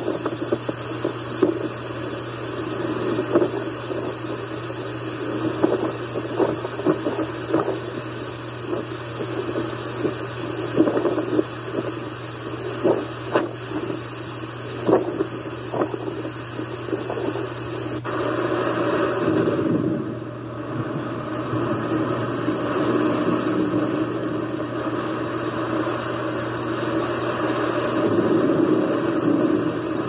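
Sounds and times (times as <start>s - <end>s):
gusting wind and rain: 0.0s - 18.1s, 18.7s - 30.0s
low hum: 0.0s - 30.0s.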